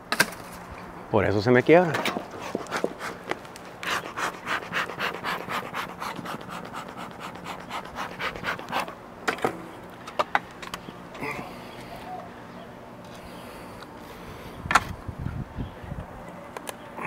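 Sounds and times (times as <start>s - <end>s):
dog panting rapidly: 2.3s - 9.0s.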